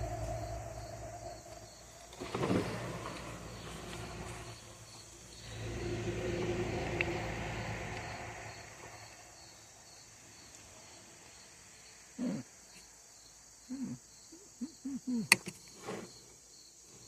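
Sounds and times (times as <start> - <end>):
vehicle passing by: 0.0 - 10.2
crickets chirping: 0.0 - 17.0.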